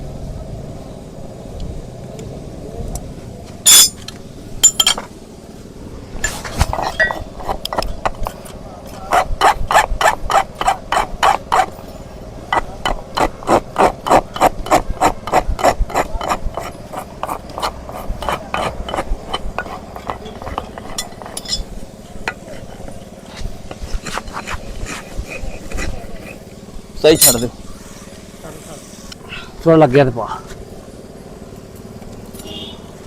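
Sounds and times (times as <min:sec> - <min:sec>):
rasp filing a hoof: 0:06.6 - 0:11.8, 0:12.5 - 0:26.5.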